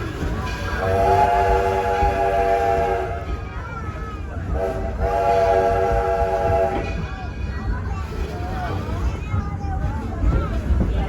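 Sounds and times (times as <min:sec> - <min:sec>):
train running rumble: 0:00.0 - 0:11.0
steam locomotive whistle: 0:00.8 - 0:03.3, 0:04.6 - 0:07.0.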